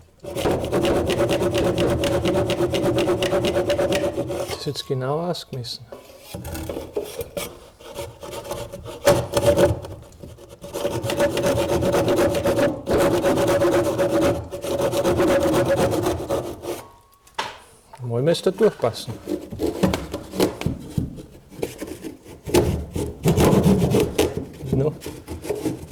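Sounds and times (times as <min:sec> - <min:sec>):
scraping and rubbing on wood: 0:00.0 - 0:17.0, 0:18.4 - 0:25.9
power saw cutting wood: 0:00.2 - 0:04.8.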